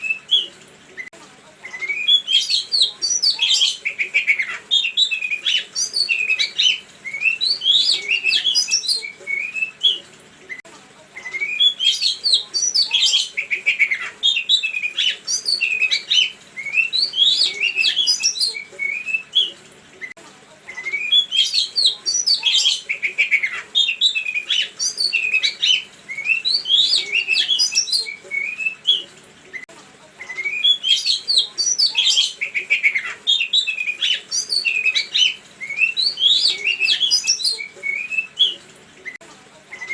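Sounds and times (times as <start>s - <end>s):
songbird singing: 1.7s - 10.0s, 11.2s - 19.6s, 20.8s - 29.1s, 30.3s - 38.6s.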